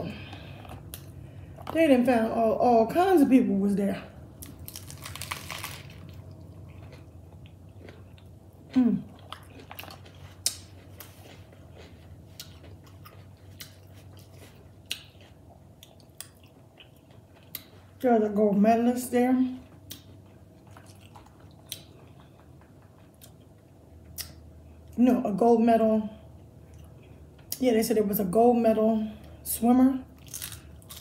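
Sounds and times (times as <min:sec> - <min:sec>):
crunching bite: 0:04.4 - 0:07.1, 0:30.2 - 0:31.0
wet chewing: 0:04.4 - 0:17.9, 0:19.7 - 0:24.4.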